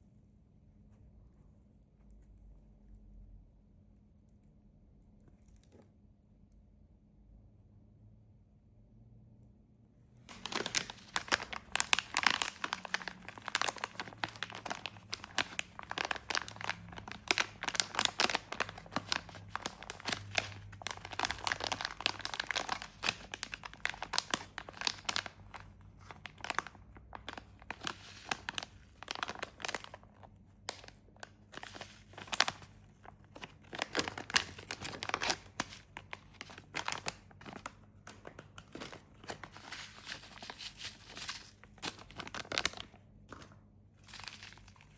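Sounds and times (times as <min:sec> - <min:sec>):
snack wrappers crinkling: 0:10.2 - 0:44.9.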